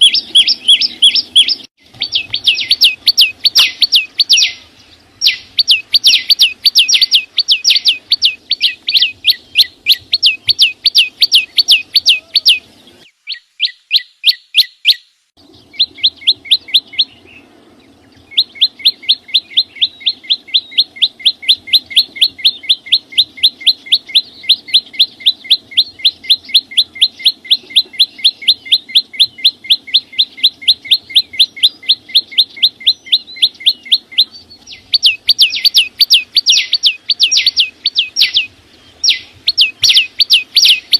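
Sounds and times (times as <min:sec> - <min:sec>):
songbird rapid chirps: 0:00.0 - 0:40.9.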